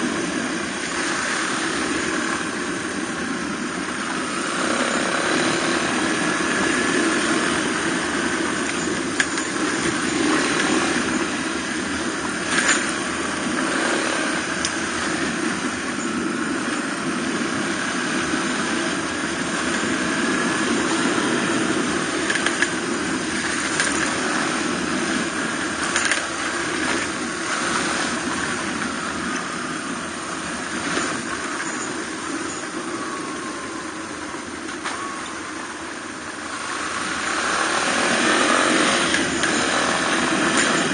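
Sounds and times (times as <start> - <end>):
dirt bike engine running: 0.0 - 40.9
wind and road noise: 0.0 - 40.9.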